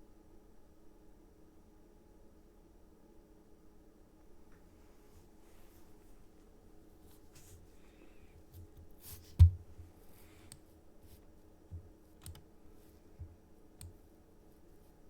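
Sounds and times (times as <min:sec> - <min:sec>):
computer clicks: 0:11.7 - 0:12.4.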